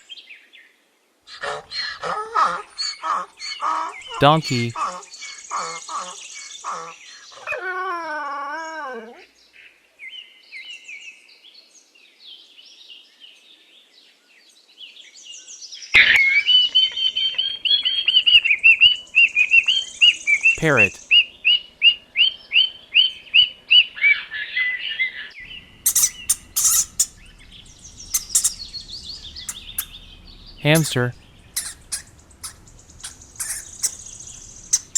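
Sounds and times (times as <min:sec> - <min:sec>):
parrot chirping: 0:25.4 - 0:34.9.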